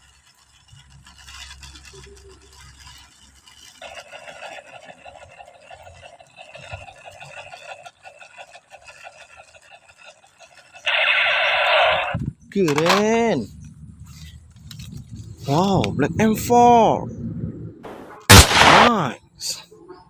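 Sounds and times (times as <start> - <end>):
rapid buzzing rattle: 0.0 - 15.6
harsh electronic burst: 17.8 - 19.1.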